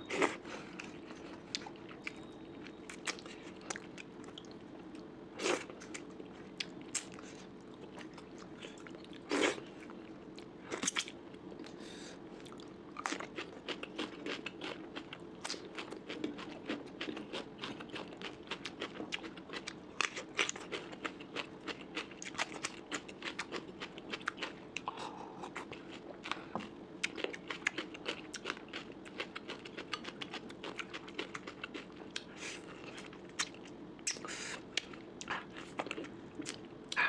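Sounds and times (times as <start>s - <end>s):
wet chewing with crunches: 0.1s - 37.0s.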